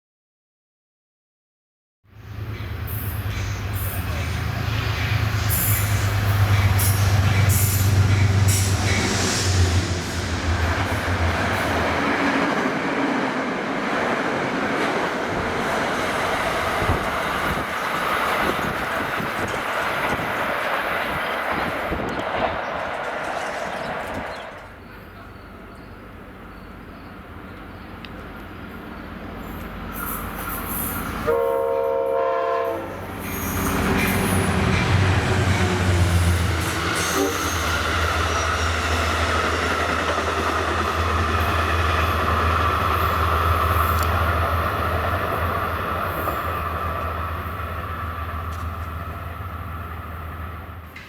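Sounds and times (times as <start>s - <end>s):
train passing with low rumble: 2.1s - 51.0s
train horn: 31.2s - 33.1s, 37.0s - 37.8s.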